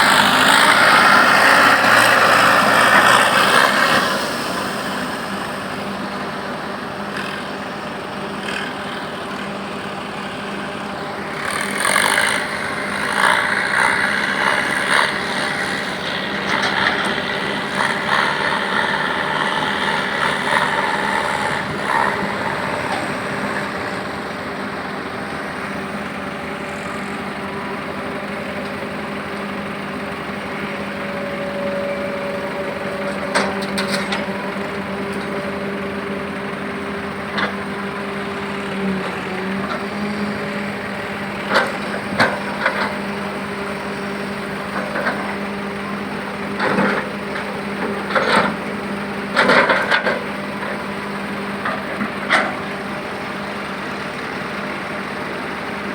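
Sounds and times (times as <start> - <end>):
heavy vehicle engine running: 0.0 - 55.9.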